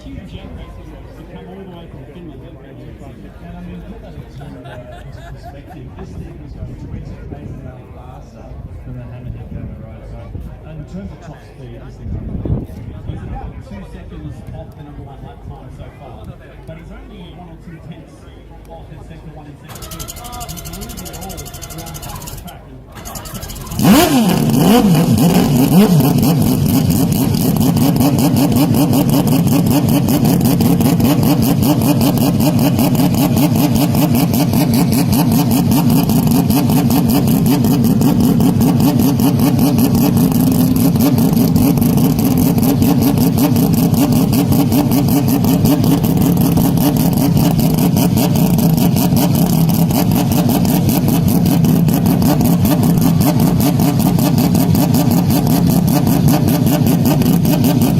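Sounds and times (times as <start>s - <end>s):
car engine running hard: 19.7s - 57.9s.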